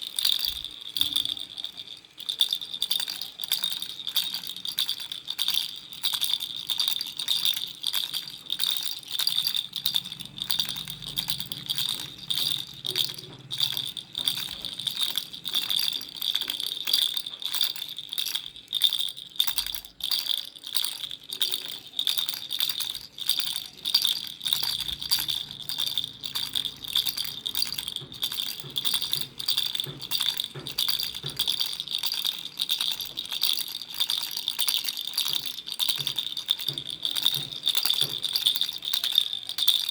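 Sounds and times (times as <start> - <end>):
baby rattle shaking: 0.0 - 39.9.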